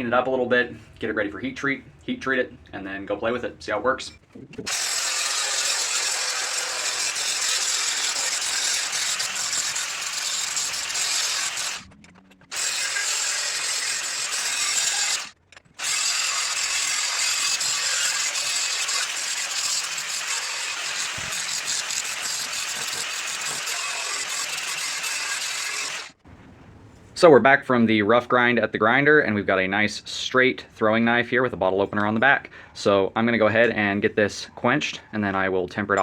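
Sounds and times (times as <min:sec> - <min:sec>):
grinder grinding steel: 0:04.7 - 0:26.2.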